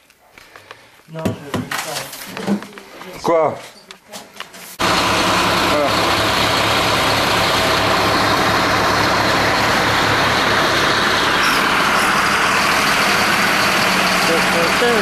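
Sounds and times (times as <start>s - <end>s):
truck engine rumbling: 4.8s - 15.0s.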